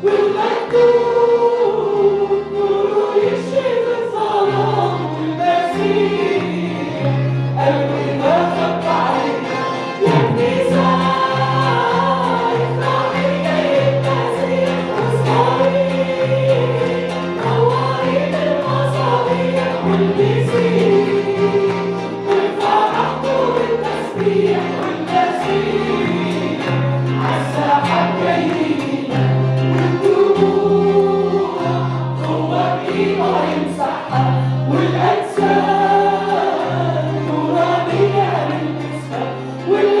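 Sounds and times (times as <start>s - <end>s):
group singing a hymn: 0.0s - 40.0s
stepping bass line: 10.0s - 11.6s.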